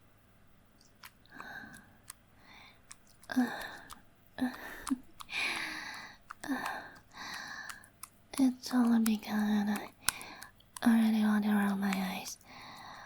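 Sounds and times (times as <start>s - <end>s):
mouth clicks: 0.8s - 13.0s
woman gasping and exhaling: 3.3s - 7.9s.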